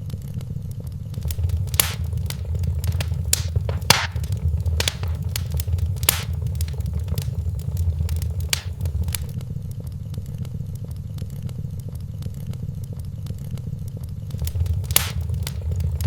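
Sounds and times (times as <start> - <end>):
sharp pops of fire: 1.2 - 9.3, 14.3 - 16.0
low rumble of flames: 1.2 - 9.4, 14.3 - 16.0
wood fire crackling: 1.2 - 9.4, 14.3 - 16.0.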